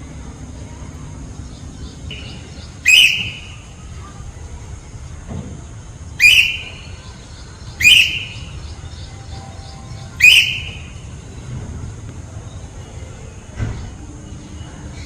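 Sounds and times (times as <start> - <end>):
parrot calling: 2.1 - 3.8, 6.2 - 7.0, 7.7 - 8.7, 10.1 - 11.0.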